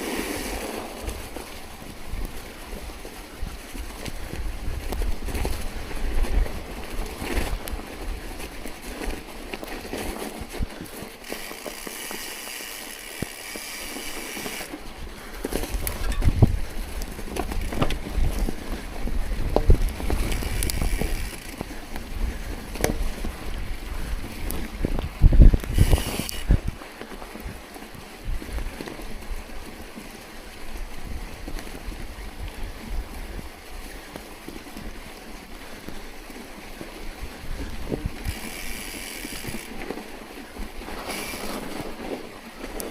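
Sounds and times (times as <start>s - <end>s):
wind buffeting microphone: 0.0s - 9.7s, 14.6s - 29.8s, 30.5s - 34.2s, 34.8s - 41.3s
tyres rolling over snow: 0.0s - 42.9s
crunches and clicks: 19.4s - 22.1s
hiss: 25.7s - 26.5s.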